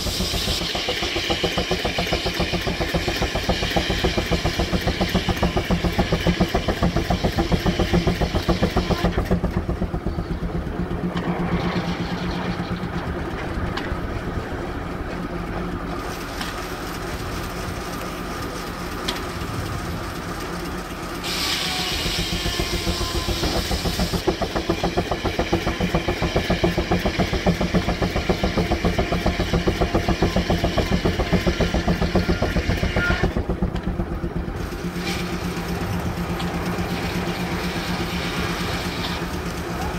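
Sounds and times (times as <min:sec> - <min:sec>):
steam hiss: 0:00.0 - 0:09.5, 0:20.2 - 0:33.5, 0:36.9 - 0:39.4
steam engine exhaust beat: 0:00.0 - 0:16.1, 0:18.0 - 0:39.9.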